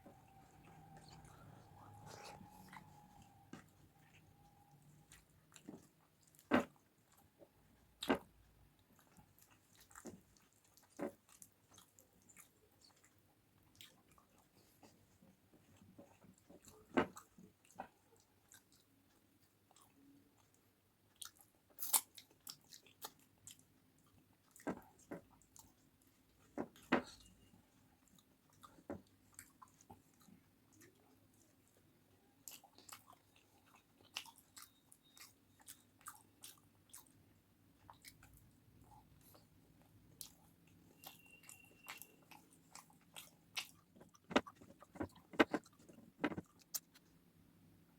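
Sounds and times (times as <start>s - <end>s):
person chewing crunchy food: 8.0s - 27.3s, 32.4s - 37.2s, 37.8s - 47.0s.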